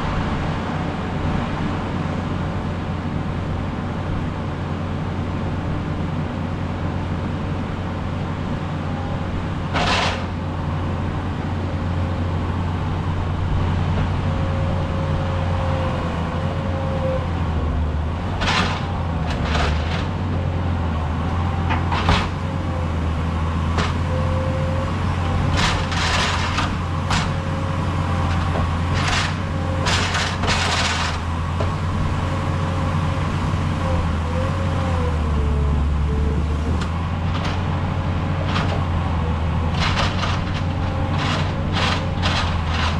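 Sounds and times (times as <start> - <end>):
skid steer engine running: 0.0 - 42.9
sharp metal knocks and clanks: 9.8 - 10.3.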